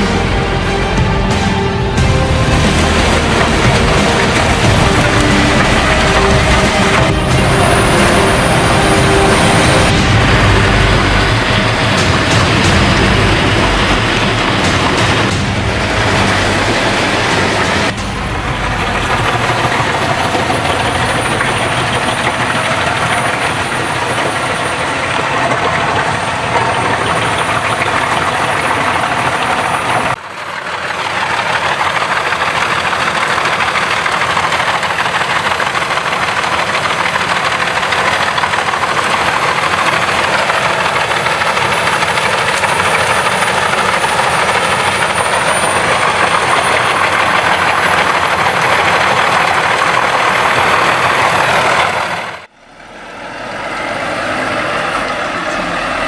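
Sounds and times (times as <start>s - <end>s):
thin high whine: 0.0s - 30.2s
wood chipper running: 0.0s - 56.0s.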